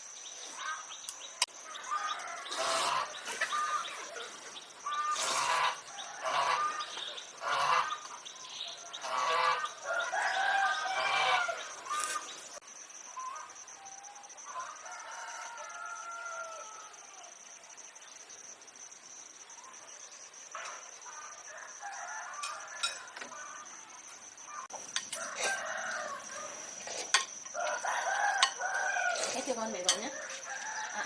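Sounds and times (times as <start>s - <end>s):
rooster crowing: 1.7s - 8.0s, 8.7s - 12.3s, 14.5s - 17.3s, 21.1s - 31.0s
hens clucking: 1.9s - 12.5s.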